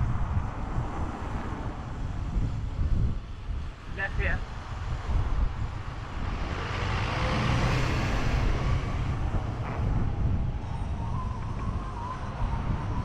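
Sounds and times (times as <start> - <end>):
broad rushing noise: 0.0 - 11.3
wind buffeting microphone: 0.0 - 13.0
low rumble: 4.6 - 13.0.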